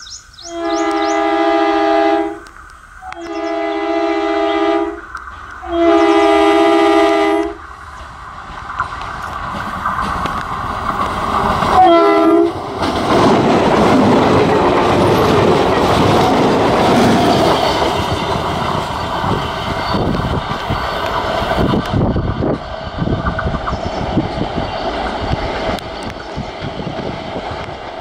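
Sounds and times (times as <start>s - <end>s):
train passing: 0.0s - 28.0s
wheels clattering over rail joints: 7.7s - 28.0s.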